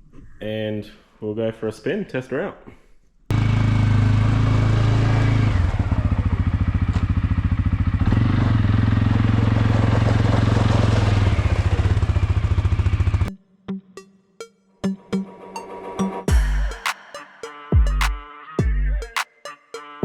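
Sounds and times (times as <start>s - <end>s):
motor throbbing: 16.3s - 16.9s.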